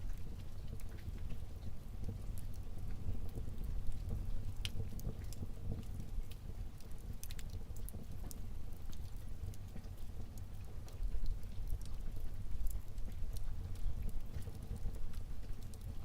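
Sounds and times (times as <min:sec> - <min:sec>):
fire crackles and pops: 0:00.0 - 0:16.0
fire low rumble: 0:00.0 - 0:16.0.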